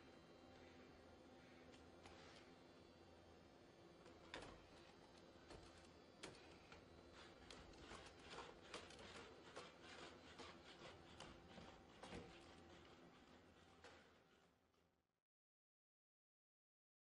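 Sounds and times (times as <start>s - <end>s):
faint steady hum: 0.0s - 11.7s.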